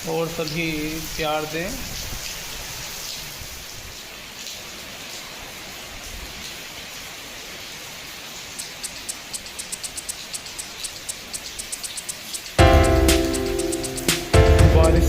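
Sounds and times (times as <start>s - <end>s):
heavy rain falling: 0.0s - 15.0s
high ticking music rhythm: 8.6s - 15.0s.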